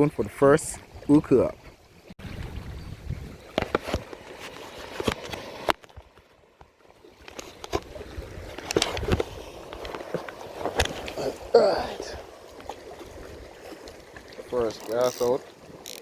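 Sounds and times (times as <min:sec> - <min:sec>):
sea water sloshing at shore: 0:00.0 - 0:16.0.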